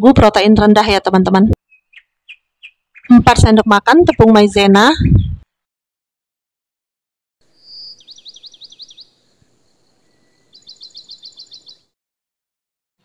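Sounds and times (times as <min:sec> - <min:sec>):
small bird chirping: 0:01.6 - 0:05.4, 0:07.4 - 0:12.0.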